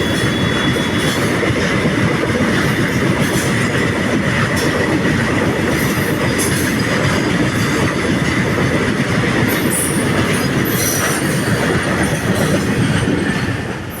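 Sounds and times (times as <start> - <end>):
high wheel squeals: 0.0 - 1.4
train wheels rumbling on rail: 0.0 - 14.0.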